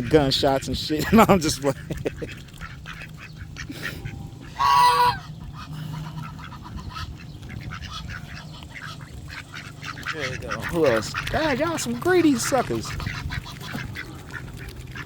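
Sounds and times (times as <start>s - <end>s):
goose honking: 0.0s - 15.0s
low steady hum: 1.0s - 11.7s.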